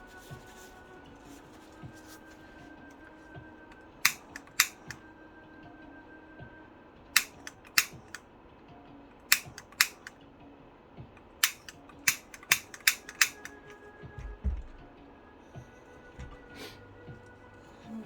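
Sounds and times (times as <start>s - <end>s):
small hard objects clicking: 11.2s - 13.8s
low thump: 14.2s - 14.9s.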